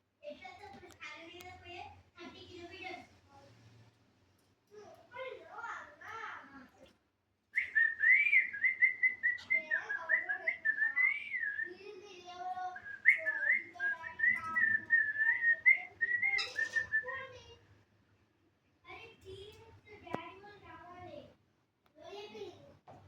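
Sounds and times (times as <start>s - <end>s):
cockatiel whistling: 7.6s - 11.7s, 12.6s - 17.2s.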